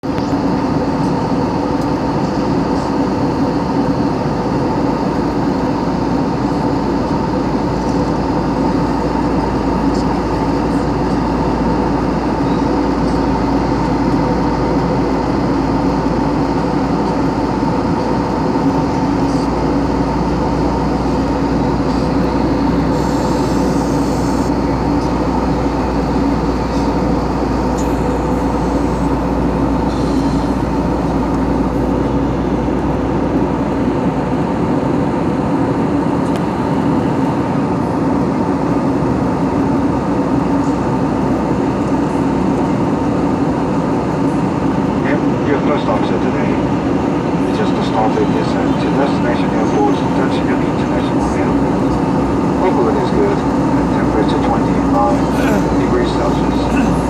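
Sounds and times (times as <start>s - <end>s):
airliner cabin noise: 0.0s - 57.0s.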